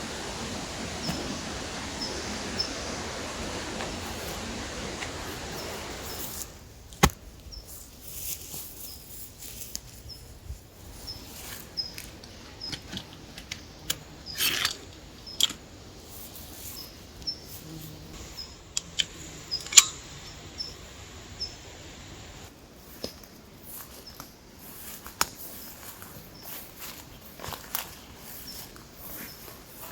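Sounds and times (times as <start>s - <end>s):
clicks snaps and rustles: 25.0s - 25.5s.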